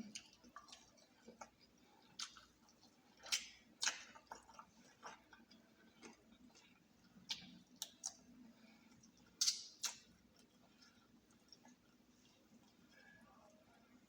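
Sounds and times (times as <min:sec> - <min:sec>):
chewing fried chicken: 0:00.0 - 0:14.0.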